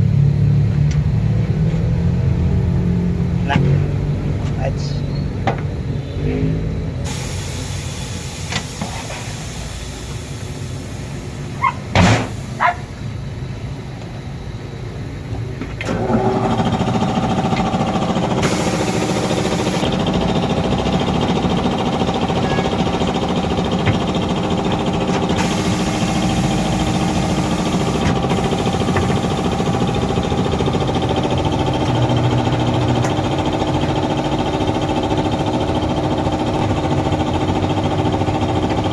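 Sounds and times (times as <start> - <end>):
motor humming: 15.8 - 38.9.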